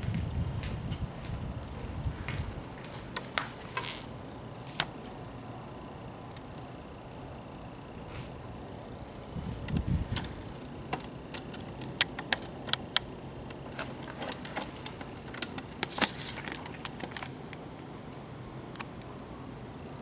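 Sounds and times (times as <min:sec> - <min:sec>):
sharp clicks and light taps: 0:09.4 - 0:19.7.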